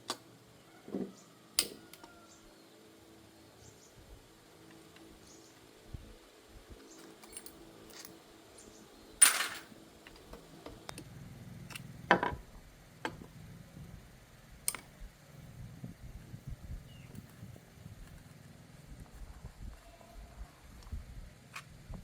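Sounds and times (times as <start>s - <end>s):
metal tools clinking: 7.0s - 8.2s, 9.2s - 9.8s.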